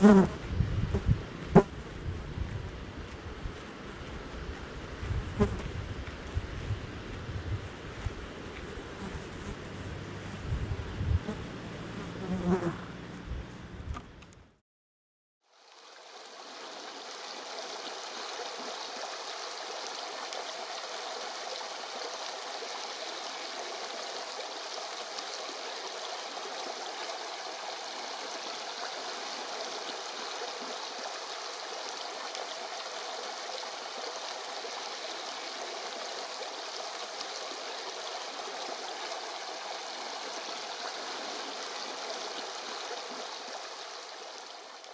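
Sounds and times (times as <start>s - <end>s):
rushing flowing water: 1.1s - 10.4s, 15.5s - 44.9s.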